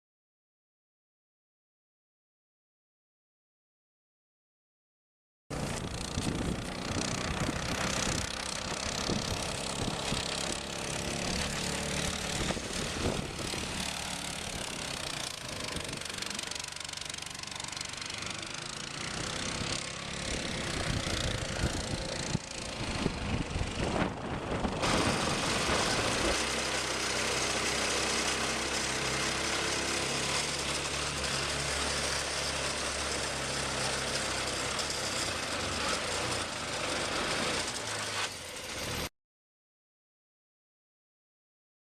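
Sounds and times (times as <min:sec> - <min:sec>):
boat motor running with rattle: 0:05.5 - 0:28.0.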